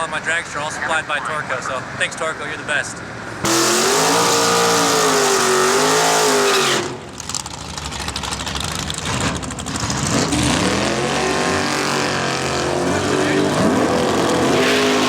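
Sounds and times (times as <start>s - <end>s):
loud engine revving: 3.4s - 7.2s, 8.1s - 15.0s.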